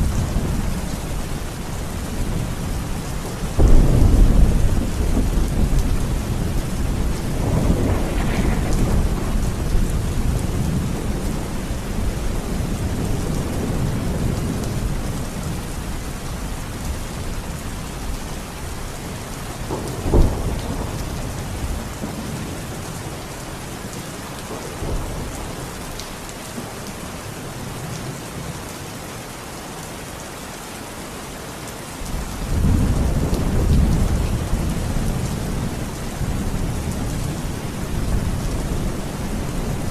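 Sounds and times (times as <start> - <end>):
steady rain: 0.0 - 39.9
rolling thunder: 2.1 - 15.7, 19.6 - 22.8
sharp thunderclap: 3.6 - 12.3, 19.7 - 21.7.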